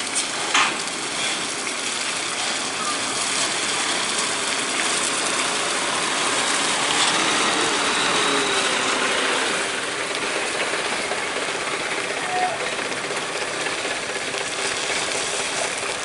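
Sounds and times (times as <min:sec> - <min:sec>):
vehicle grinding mechanical noise: 0:05.2 - 0:16.0.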